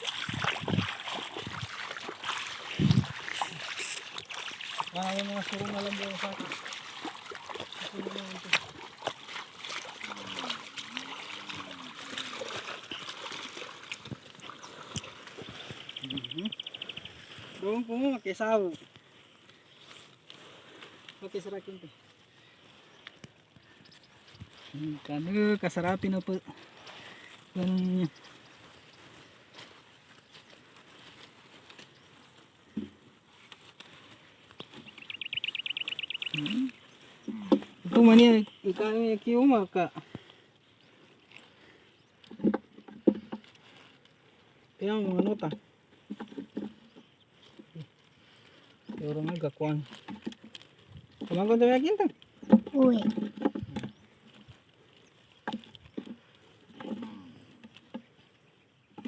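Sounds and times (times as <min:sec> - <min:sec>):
small splashes and drips: 0:00.0 - 0:16.0
shallow river water splashing: 0:00.0 - 0:17.7, 0:26.4 - 0:44.8.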